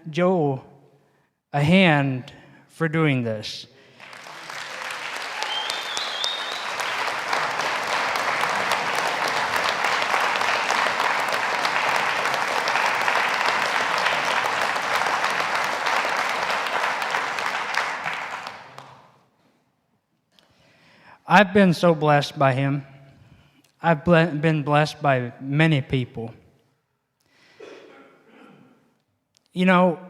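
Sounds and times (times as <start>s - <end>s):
audience clapping: 3.9s - 19.3s.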